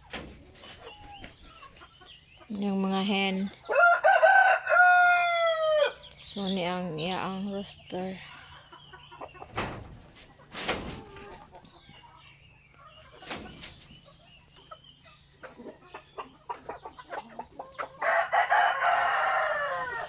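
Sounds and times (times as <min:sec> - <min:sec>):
chickens clucking: 0:00.0 - 0:20.0
rooster crowing: 0:03.7 - 0:06.0, 0:18.0 - 0:20.0.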